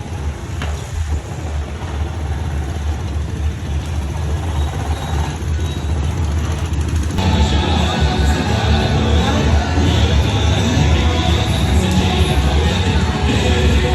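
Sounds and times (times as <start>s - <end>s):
wind rumbling on microphone: 0.0s - 7.2s
small motorbike engine running: 0.0s - 13.9s.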